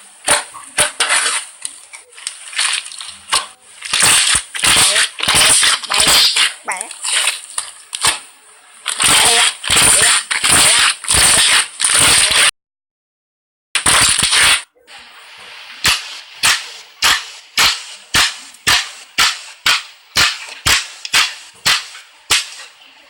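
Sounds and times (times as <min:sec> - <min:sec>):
slime squelching: 0:00.2 - 0:12.5
sharp slime pops: 0:02.2 - 0:12.5, 0:15.8 - 0:22.7.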